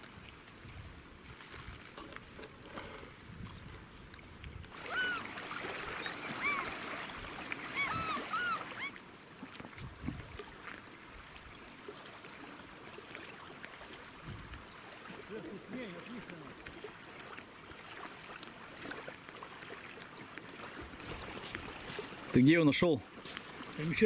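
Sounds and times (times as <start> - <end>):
bird calling: 4.8 - 9.0.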